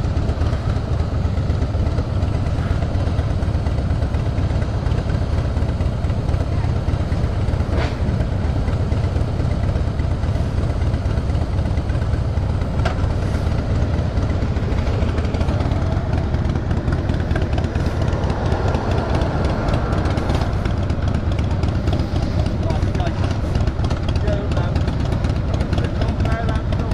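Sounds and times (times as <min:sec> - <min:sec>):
motorcycle engine rumbling: 0:00.0 - 0:26.9.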